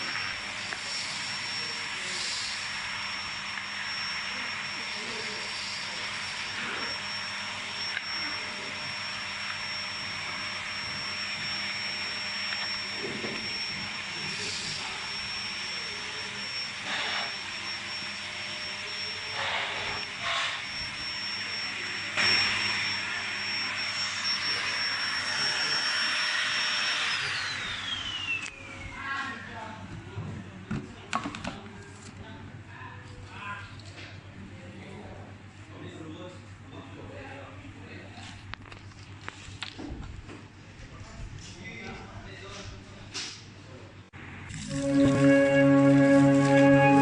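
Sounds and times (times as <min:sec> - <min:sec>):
vacuum cleaner running: 0:00.0 - 0:29.6, 0:44.2 - 0:47.0.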